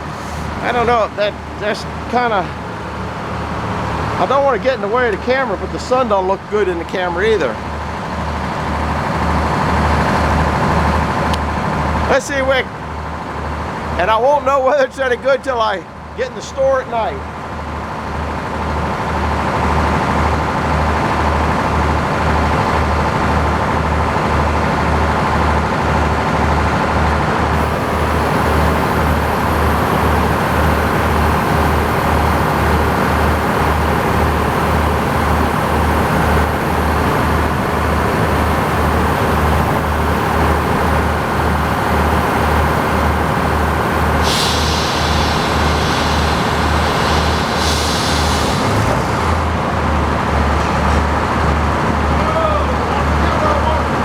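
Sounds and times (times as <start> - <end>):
thin high whine: 27.6 - 49.8
tractor engine running: 27.6 - 49.9.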